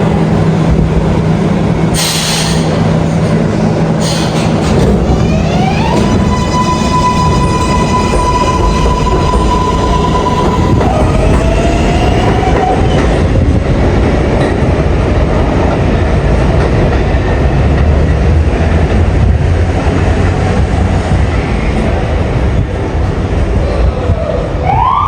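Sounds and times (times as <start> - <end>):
steel wheels rumbling on track: 0.0 - 24.7
train motors whining: 0.7 - 13.6.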